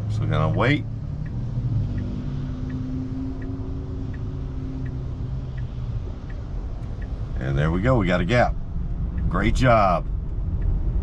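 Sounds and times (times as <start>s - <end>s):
traffic passing on wet roads: 0.0s - 7.4s.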